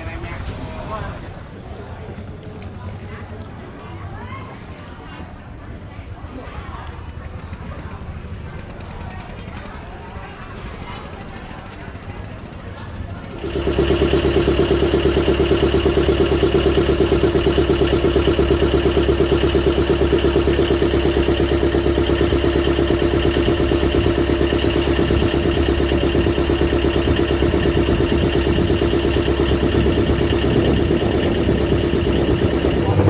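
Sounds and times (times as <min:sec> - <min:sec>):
engine running with fast pulse: 0:13.3 - 0:33.0.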